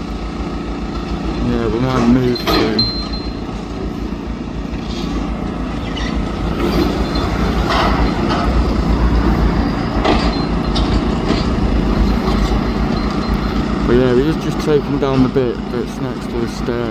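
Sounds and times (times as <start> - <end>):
excavator diesel engine running: 0.0 - 16.9
crunching clattering knocks: 4.7 - 16.9.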